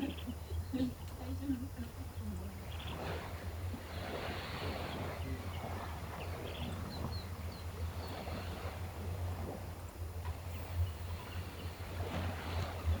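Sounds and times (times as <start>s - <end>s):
waves washing ashore: 0.0s - 13.0s.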